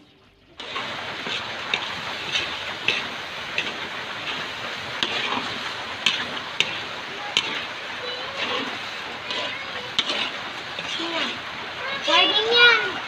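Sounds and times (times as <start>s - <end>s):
food sizzling in a wok: 0.5s - 13.0s
metal spoon scraping a wok: 0.6s - 11.6s.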